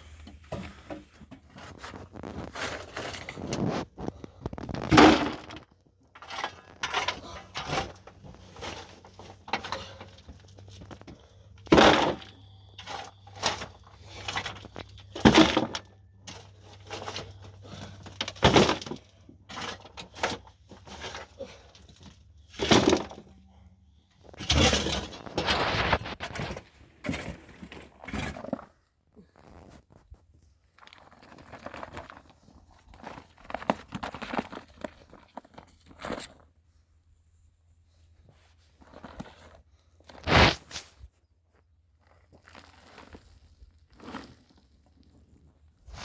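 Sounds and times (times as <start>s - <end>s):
small clicks and scraping: 0.2s - 23.3s.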